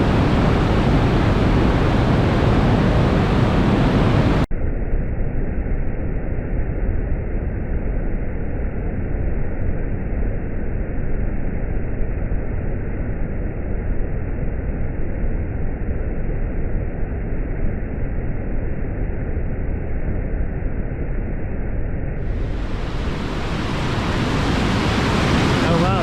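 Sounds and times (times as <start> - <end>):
muffled waterfall rushing: 22.2 - 26.0.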